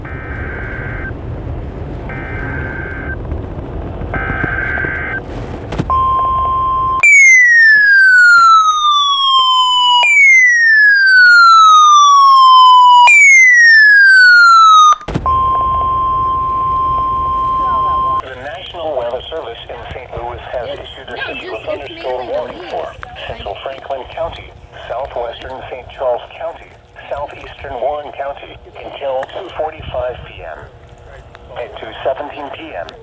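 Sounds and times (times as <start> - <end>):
digital data bursts: 0.0 - 1.2, 2.1 - 3.3, 4.0 - 5.2, 15.1 - 30.6
falling electronic siren sweeps: 0.0 - 1.2, 2.1 - 3.2, 4.1 - 5.2, 5.9 - 18.2
radio static hiss: 0.0 - 7.1, 15.1 - 33.0
steady warning tone: 0.0 - 33.0.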